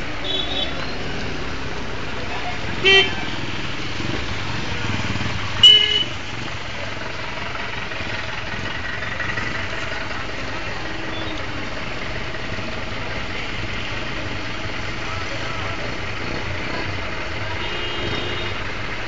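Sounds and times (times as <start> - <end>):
road traffic: 0.0 - 19.0
vehicle horn toot: 5.6 - 6.2, 17.6 - 18.6.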